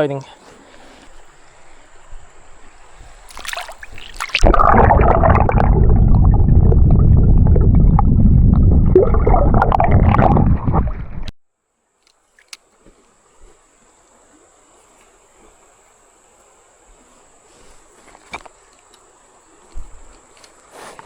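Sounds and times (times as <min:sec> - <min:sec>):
water gurgling rumble: 0:03.6 - 0:11.3.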